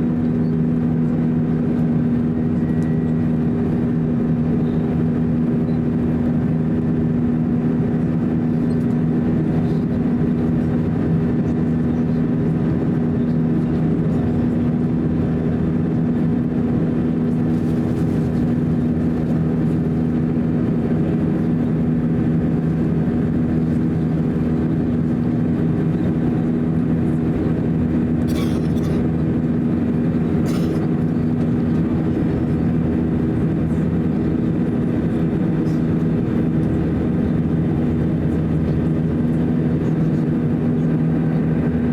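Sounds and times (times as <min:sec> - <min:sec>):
jet engines humming: 0:00.0 - 0:41.9.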